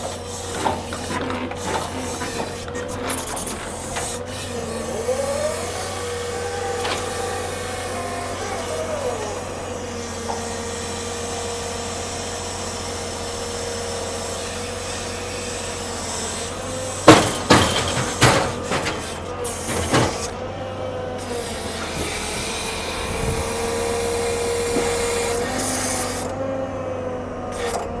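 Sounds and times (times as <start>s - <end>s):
heavy machinery whining: 0.0s - 28.0s
logs knocking and banging: 17.1s - 20.4s.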